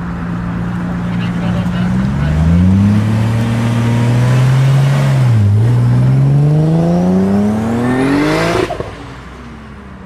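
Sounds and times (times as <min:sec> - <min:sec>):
car engine accelerating hard: 0:01.4 - 0:09.1.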